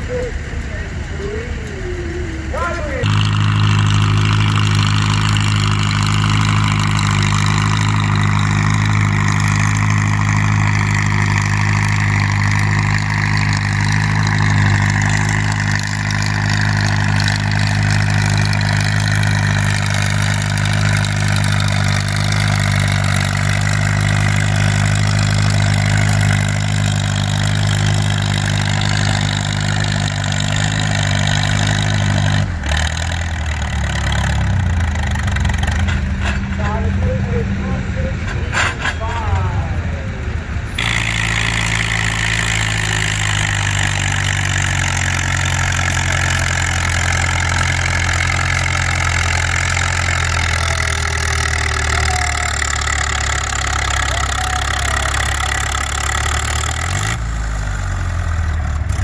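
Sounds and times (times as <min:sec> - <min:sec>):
tractor engine under heavy load: 0:00.0 - 0:59.0.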